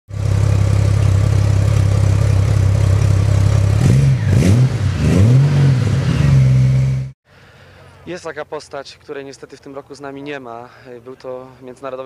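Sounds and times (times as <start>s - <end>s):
motorcycle engine idling and revving: 0.1s - 7.2s.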